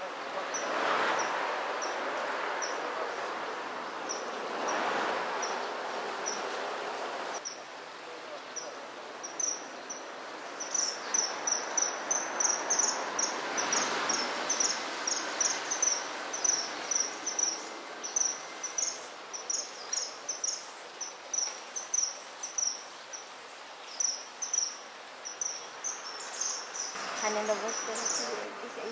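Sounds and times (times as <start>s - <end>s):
stream water rushing: 0.0s - 28.9s
cricket chirping: 10.6s - 23.3s.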